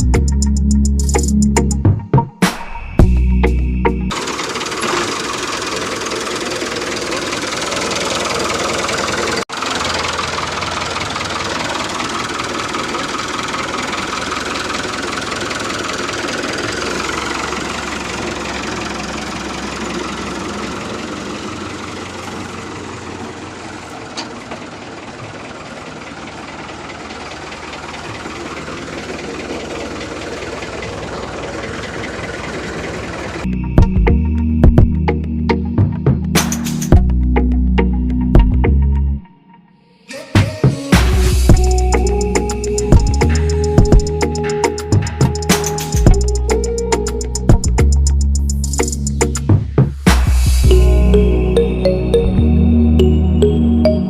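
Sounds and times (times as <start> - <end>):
small motor running: 4.1 - 23.4.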